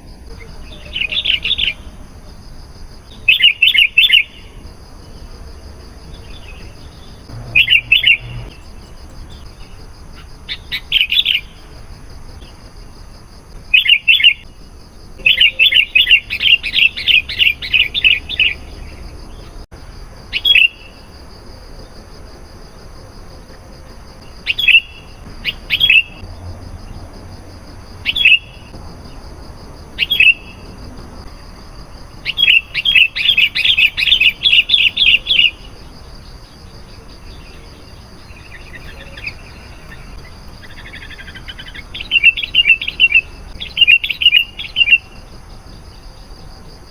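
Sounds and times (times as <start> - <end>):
bulbul chirping: 6.4 - 9.8, 15.2 - 19.5.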